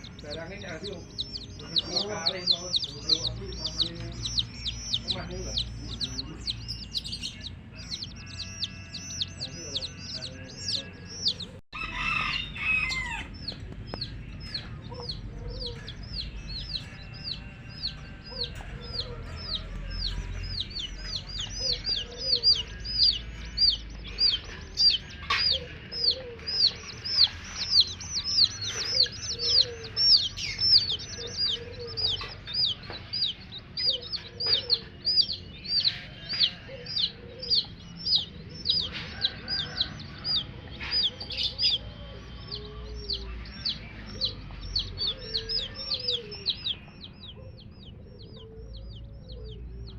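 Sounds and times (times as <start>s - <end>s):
baby chicks peeping: 0.0s - 49.9s
hen clucking: 0.0s - 49.9s.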